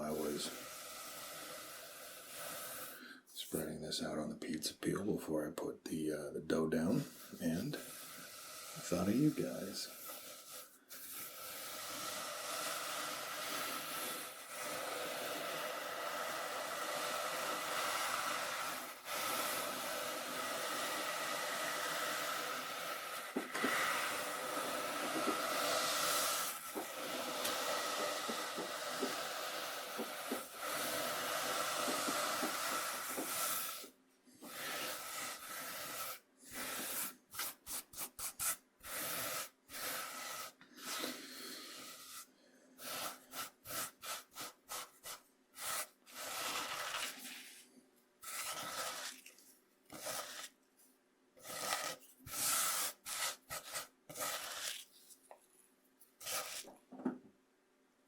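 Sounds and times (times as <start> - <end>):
gritty scraping on cutting board: 13.3 - 47.6, 48.2 - 50.6, 51.4 - 55.2.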